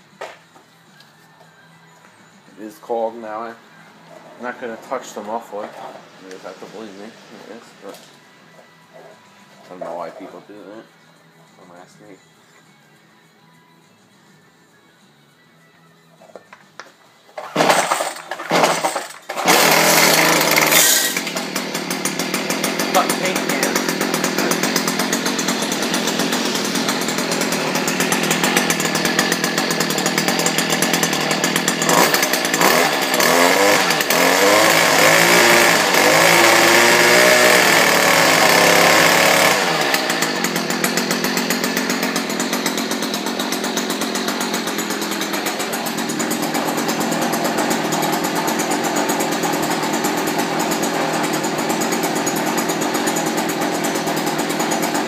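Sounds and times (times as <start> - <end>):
two-stroke engine idling and revving: 17.4 - 55.0.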